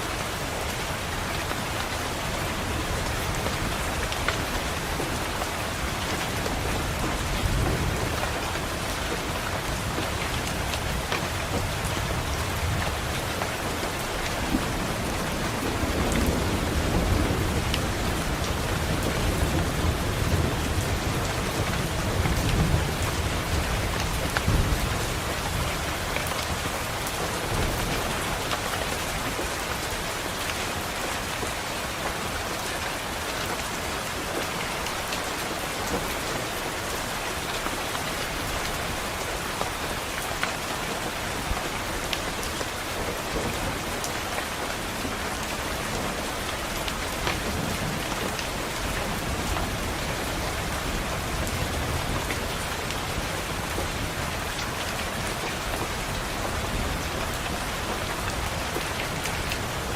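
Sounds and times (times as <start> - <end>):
rain pattering on a window: 0.0 - 59.9
low rumble of thunder: 2.6 - 29.5.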